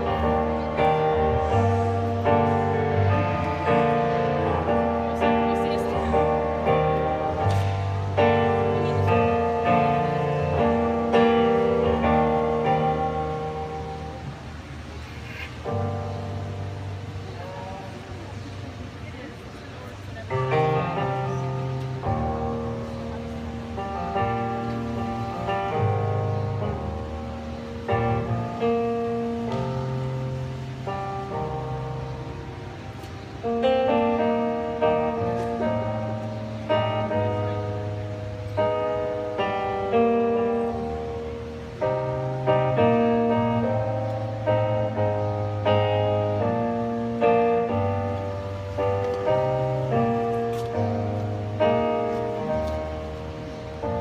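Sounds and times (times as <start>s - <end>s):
sustained low bass notes: 0.0s - 14.8s
held keyboard chords: 0.0s - 54.0s.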